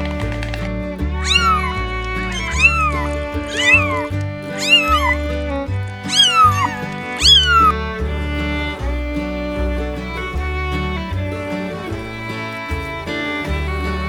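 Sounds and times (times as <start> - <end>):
background music with bass: 0.0 - 14.0
cat meowing: 1.2 - 8.7.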